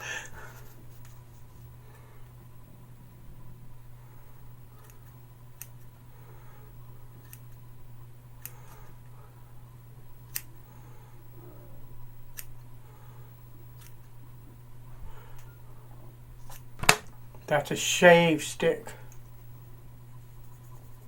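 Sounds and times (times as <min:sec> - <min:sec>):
steady low hum: 0:00.0 - 0:21.0
scissors snipping hair: 0:07.2 - 0:07.6, 0:10.3 - 0:10.5, 0:12.3 - 0:12.6.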